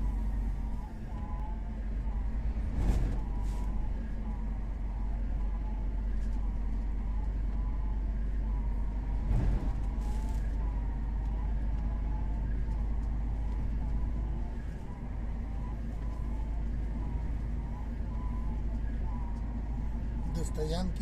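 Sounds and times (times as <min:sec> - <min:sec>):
truck engine and road drone: 0:00.0 - 0:21.0
strong crosswind: 0:08.9 - 0:12.0.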